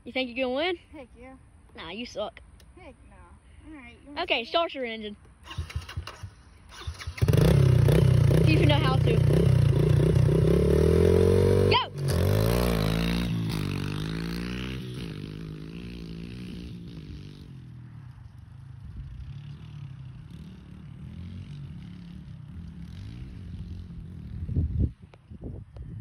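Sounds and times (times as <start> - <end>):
motorbike engines revving: 5.4 - 25.0.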